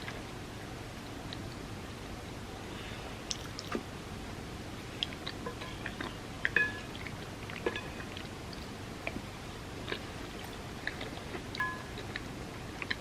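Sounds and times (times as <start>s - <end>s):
chewing sounds: 3.3s - 3.8s, 4.9s - 13.0s.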